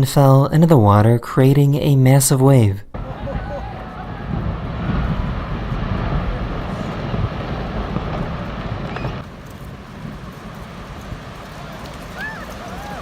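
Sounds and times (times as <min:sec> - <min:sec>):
glacier ice collapsing rumble: 0:03.0 - 0:13.0
wave: 0:03.0 - 0:13.0.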